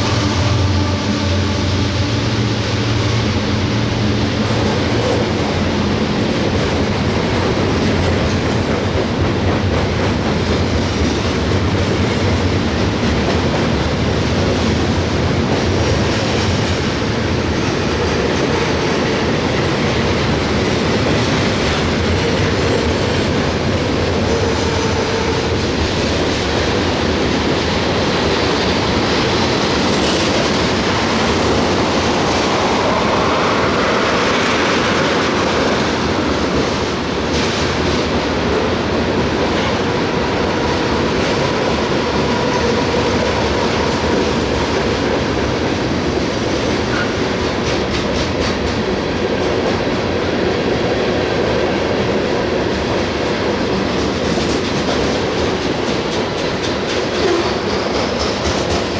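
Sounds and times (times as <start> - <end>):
freight train rolling past: 0.0 - 58.9
wheels clattering on rails: 52.1 - 58.9.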